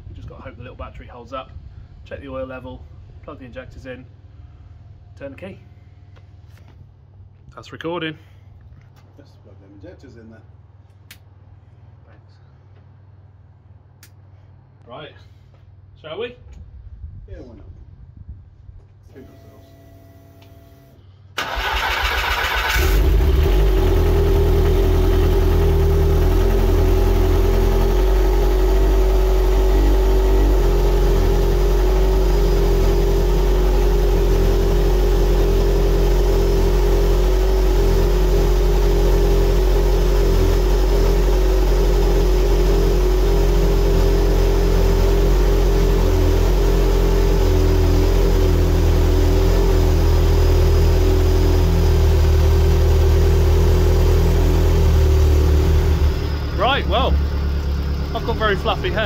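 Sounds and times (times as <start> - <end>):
race engine idling: 21.4 - 59.0.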